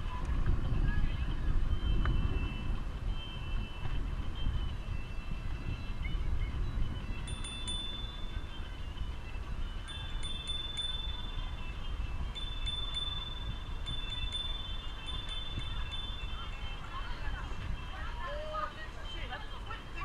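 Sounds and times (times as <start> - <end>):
wind rumble on microphone: 0.0 - 20.0
small metal bell chiming: 7.1 - 8.9, 9.7 - 17.5.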